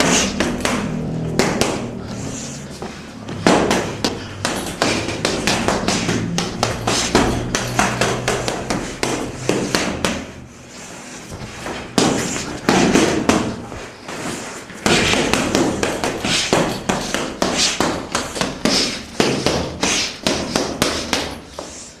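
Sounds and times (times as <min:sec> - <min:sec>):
gloved punches hitting boxing gear: 0:00.0 - 0:01.9, 0:03.3 - 0:10.3, 0:12.0 - 0:13.6, 0:14.8 - 0:21.4.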